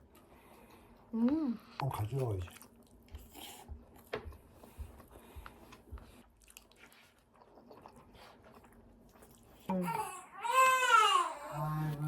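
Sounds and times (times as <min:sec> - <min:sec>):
chewing and biting food: 0:01.8 - 0:09.7.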